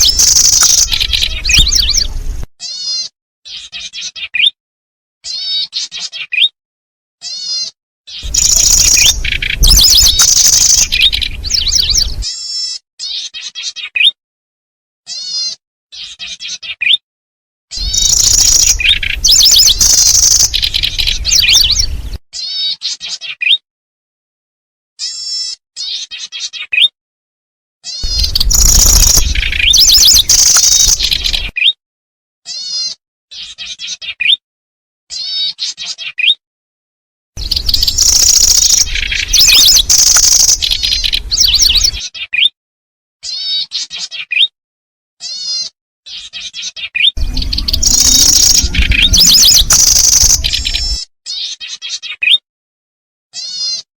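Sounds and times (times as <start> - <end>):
high rapid insect chirping: 0.0 - 1.0, 8.3 - 11.0, 17.8 - 21.0, 28.0 - 31.4, 37.4 - 41.8, 47.5 - 50.8
low rumbling noise: 28.0 - 31.5, 47.2 - 51.0.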